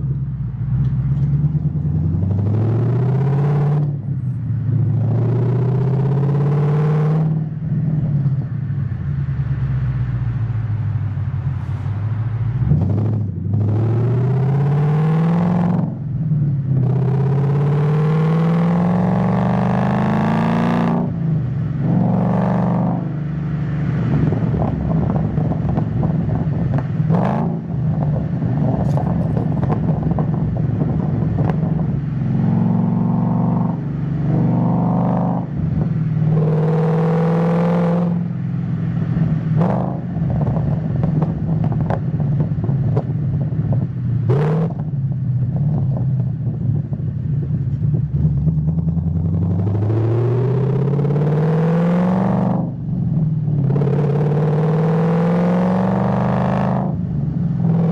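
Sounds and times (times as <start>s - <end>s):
car engine revving while driving: 0.0s - 8.5s, 12.4s - 57.9s.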